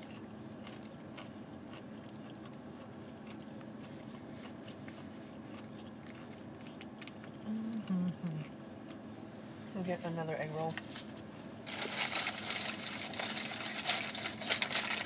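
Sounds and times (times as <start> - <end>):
person chewing: 0.0 - 9.2
short hummed sounds: 0.0 - 15.0.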